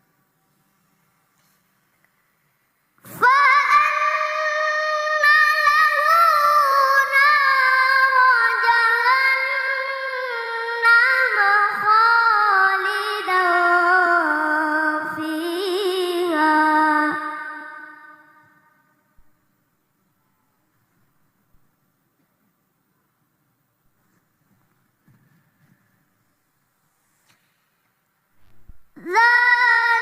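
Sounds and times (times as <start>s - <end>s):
child reciting melodically: 3.0s - 18.6s, 29.0s - 30.0s.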